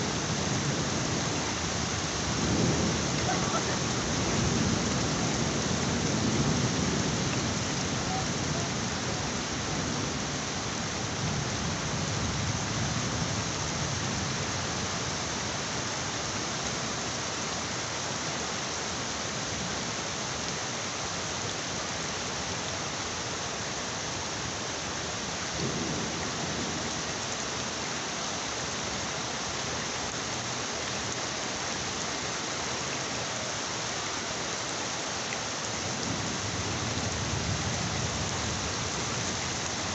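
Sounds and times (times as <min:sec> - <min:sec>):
heavy rain: 0:00.0 - 0:39.9
thunder rumbling: 0:02.2 - 0:08.9.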